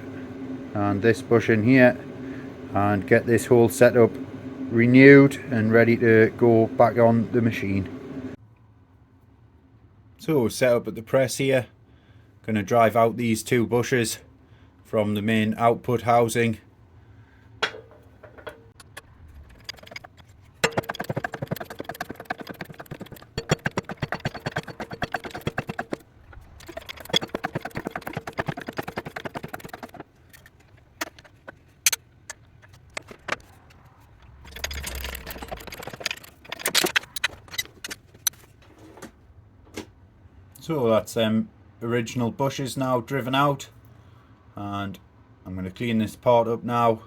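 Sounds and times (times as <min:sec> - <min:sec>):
air press chattering strokes: 0:00.0 - 0:08.4, 0:17.6 - 0:33.3
metallic clicks and clinks: 0:34.2 - 0:38.4.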